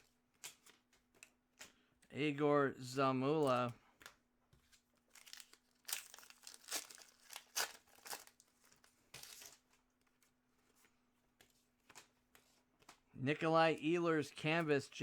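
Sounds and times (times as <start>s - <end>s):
cards swishing and rustling: 6.8s - 13.1s.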